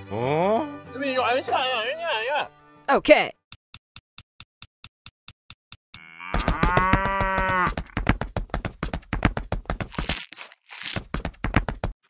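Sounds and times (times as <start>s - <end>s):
cow mooing: 6.0s - 7.7s.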